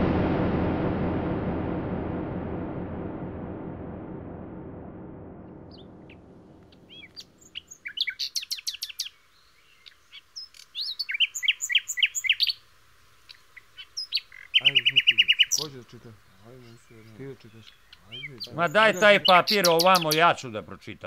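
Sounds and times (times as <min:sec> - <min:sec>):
low rumble: 0:00.0 - 0:07.8
songbirds chirping and trilling: 0:05.7 - 0:21.0.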